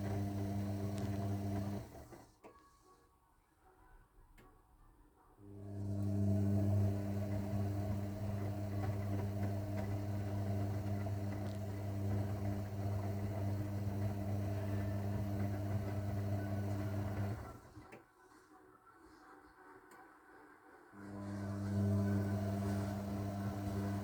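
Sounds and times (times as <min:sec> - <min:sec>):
washing machine humming: 0:00.0 - 0:02.4, 0:05.4 - 0:18.0, 0:21.0 - 0:24.0.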